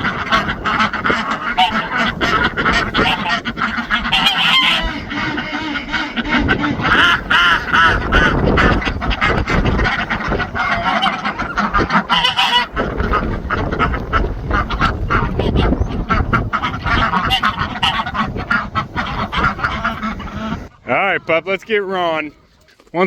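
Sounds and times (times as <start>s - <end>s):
geese honking: 0.0s - 23.0s
poultry calling: 0.0s - 23.0s.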